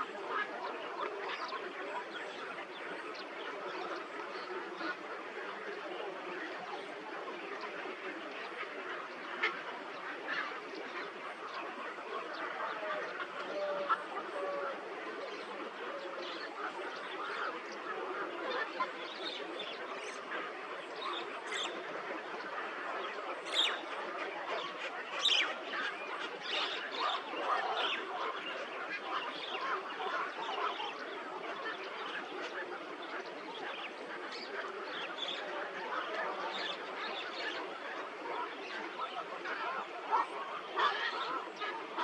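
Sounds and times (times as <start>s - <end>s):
birds chattering: 23.4s - 39.2s.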